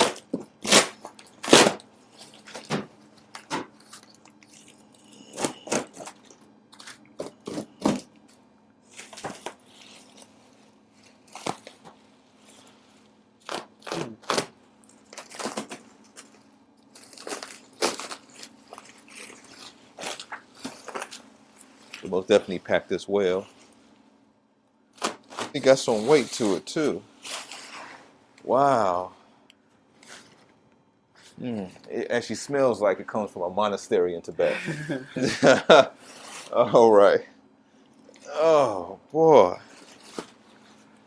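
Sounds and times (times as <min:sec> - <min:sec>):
cardboard box tearing and crinkling: 0:00.0 - 0:02.7, 0:13.4 - 0:14.5, 0:15.1 - 0:15.8, 0:17.0 - 0:21.2, 0:25.0 - 0:27.8, 0:39.7 - 0:40.4
faint steady hum: 0:00.0 - 0:41.0.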